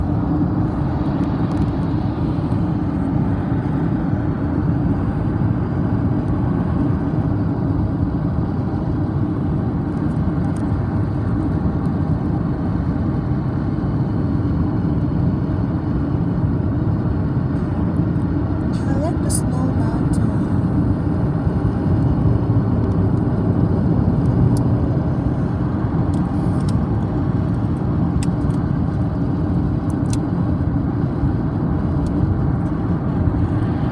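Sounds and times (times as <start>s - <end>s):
car engine and road noise: 0.0s - 33.9s.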